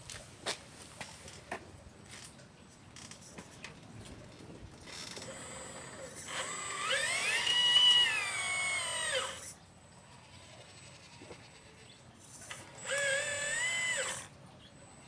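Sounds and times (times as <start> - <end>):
toy excavator motor whining: 4.8 - 15.0.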